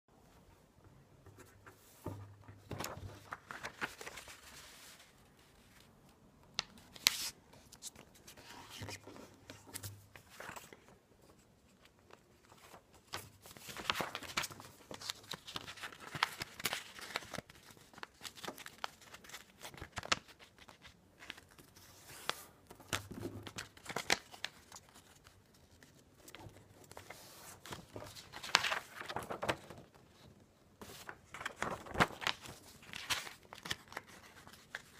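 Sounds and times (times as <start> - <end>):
paper rustling and crinkling: 1.4 - 5.9, 6.6 - 34.9
paper fold creasing swipes: 26.9 - 29.7.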